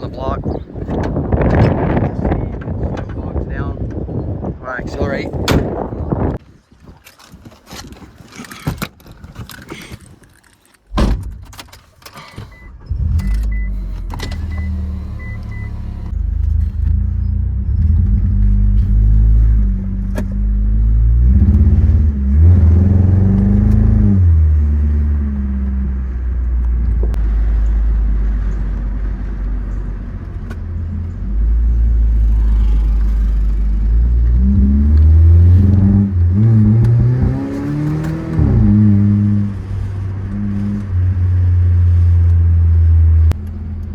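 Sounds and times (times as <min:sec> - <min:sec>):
car engine accelerating: 0:12.8 - 0:43.9.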